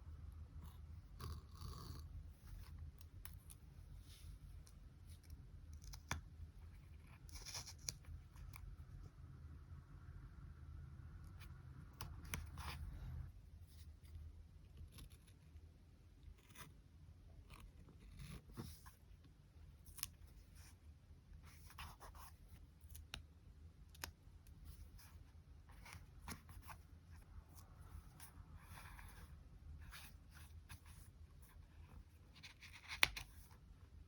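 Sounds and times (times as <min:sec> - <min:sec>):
low room hum: 0:00.0 - 0:34.0
small clicks and snips: 0:22.8 - 0:24.6.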